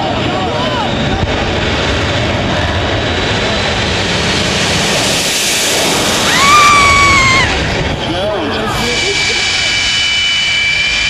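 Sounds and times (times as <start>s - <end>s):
high steady whine: 0.0s - 11.0s
jet turbine engine roaring: 0.0s - 11.0s.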